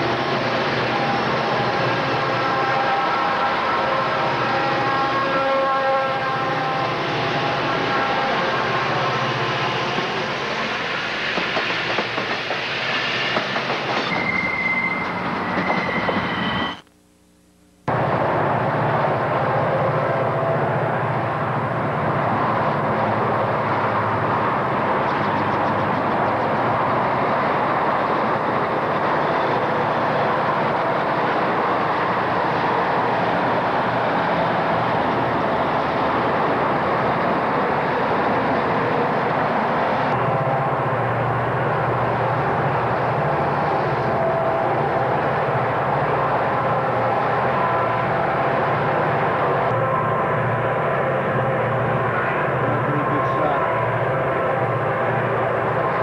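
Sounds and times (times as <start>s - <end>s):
diesel locomotive engines: 0.0s - 16.8s, 17.9s - 56.0s
high wheel squeals: 6.8s - 16.8s.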